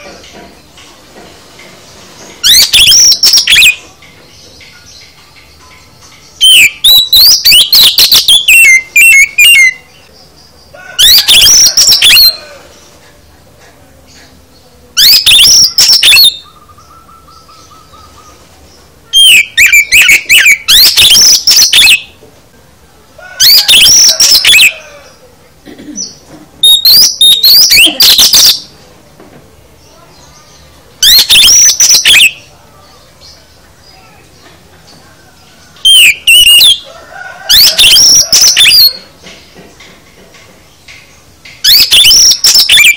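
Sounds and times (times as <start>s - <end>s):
bird singing whistles and trills: 2.4s - 10.1s, 11.0s - 12.4s, 15.0s - 18.4s, 19.1s - 22.2s, 26.0s - 28.7s, 30.2s - 34.0s, 35.8s - 36.9s, 37.5s - 39.1s, 41.6s - 42.9s.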